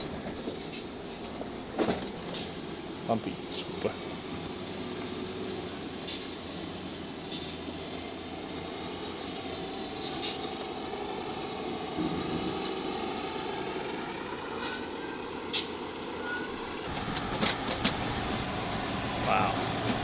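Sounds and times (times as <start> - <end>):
truck engine running: 16.8 - 20.0.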